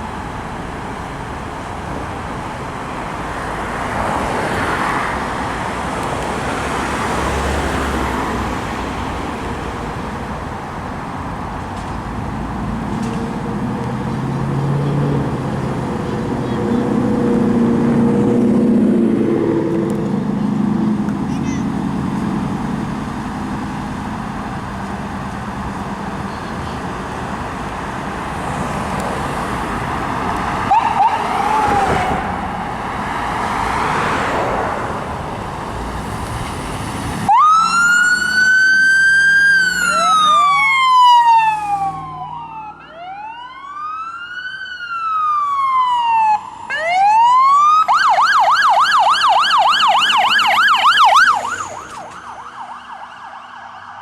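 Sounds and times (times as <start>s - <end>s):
traffic and engine rumble: 0.0s - 54.0s
emergency vehicle siren: 22.4s - 35.8s, 36.7s - 54.0s.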